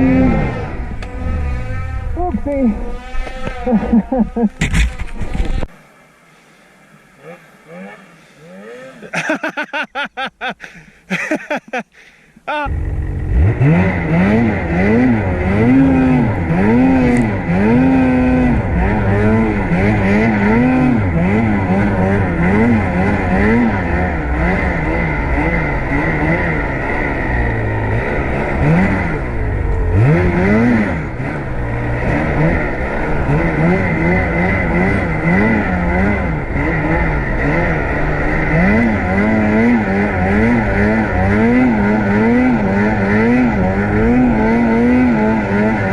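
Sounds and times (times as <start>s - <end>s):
snowmobile engine revving: 0.0s - 5.7s, 6.8s - 11.8s, 12.5s - 45.9s.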